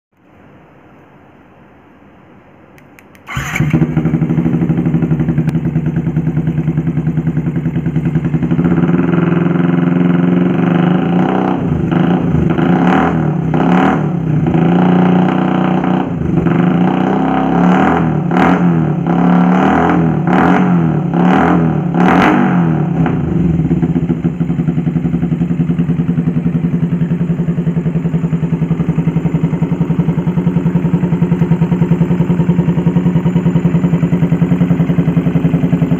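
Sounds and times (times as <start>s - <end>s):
motorcycle engine starting: 3.0s - 35.9s
motorcycle engine idling and revving: 3.2s - 35.9s.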